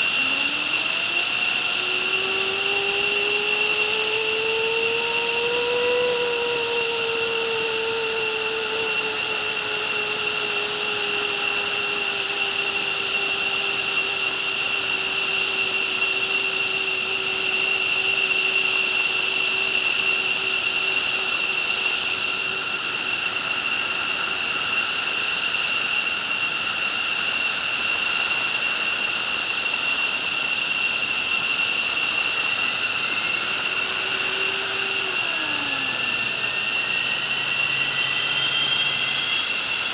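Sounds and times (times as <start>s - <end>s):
jet engines whining: 0.0s - 26.9s, 28.5s - 39.9s.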